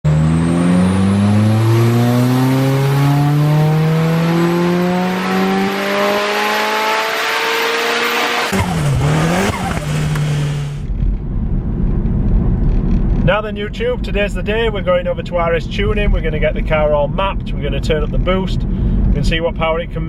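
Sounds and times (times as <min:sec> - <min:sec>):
high turbo whine: 0:00.0 - 0:13.6
car engine under hard throttle: 0:00.0 - 0:13.9.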